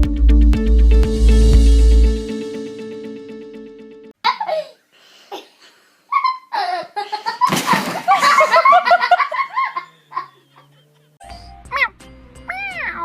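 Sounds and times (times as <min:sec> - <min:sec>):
music: 0:00.0 - 0:04.1, 0:11.2 - 0:13.0
person laughing: 0:06.1 - 0:10.6.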